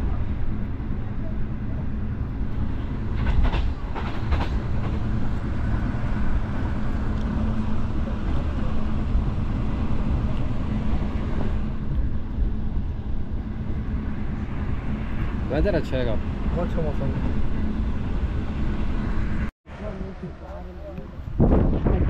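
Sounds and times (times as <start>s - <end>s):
train rumbling on rails: 0.0s - 22.0s
wheels clacking over rail joints: 2.5s - 10.7s.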